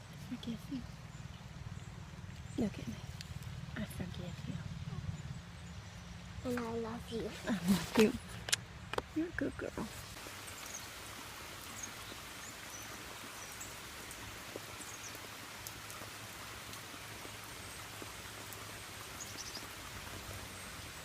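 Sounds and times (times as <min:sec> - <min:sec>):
steady rain falling: 0:06.4 - 0:21.0.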